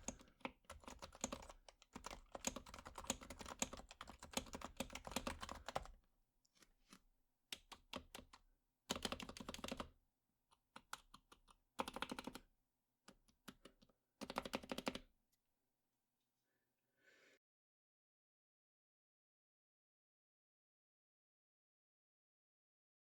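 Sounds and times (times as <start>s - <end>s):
typing on a quiet keyboard: 0.0s - 6.0s, 7.5s - 9.9s, 10.7s - 12.4s, 13.1s - 15.0s.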